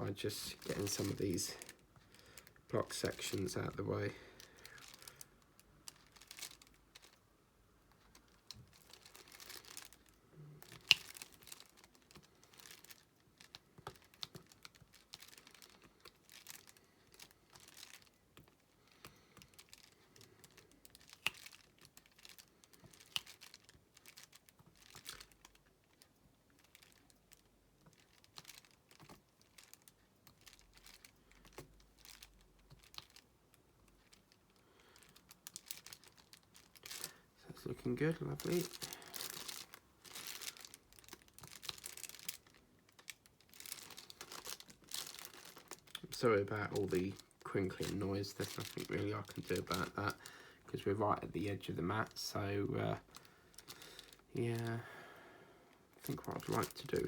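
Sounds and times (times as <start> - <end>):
canvas crinkling: 0.1 - 7.2, 8.0 - 18.6, 34.0 - 55.1, 55.9 - 57.0.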